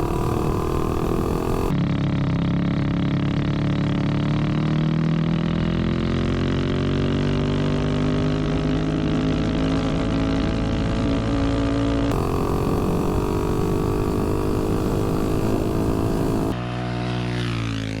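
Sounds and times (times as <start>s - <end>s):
mini bike engine running: 0.0s - 1.8s, 12.1s - 16.6s.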